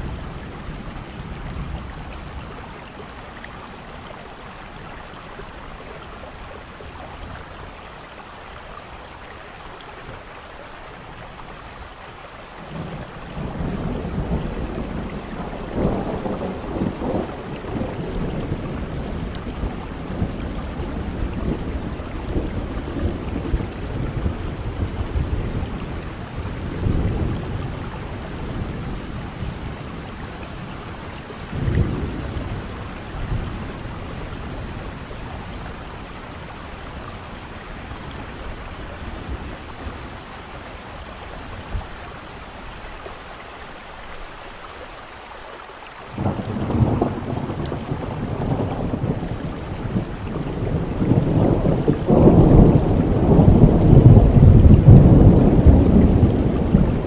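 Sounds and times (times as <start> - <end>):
steady rain: 0.0 - 57.0
rolling thunder: 12.7 - 42.5, 46.1 - 57.0.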